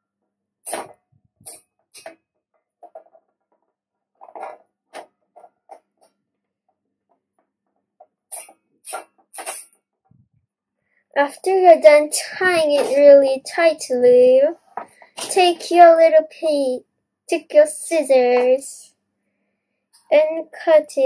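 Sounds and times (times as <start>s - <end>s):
cable tie ratcheting: 8.3s - 9.8s.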